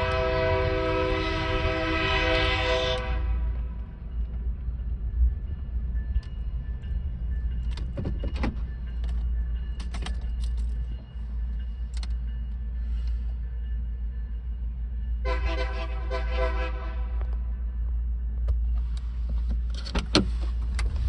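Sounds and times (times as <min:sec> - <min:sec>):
train rumbling past: 0:00.0 - 0:21.0
metallic clanks and clicks: 0:07.5 - 0:11.1, 0:18.5 - 0:21.0.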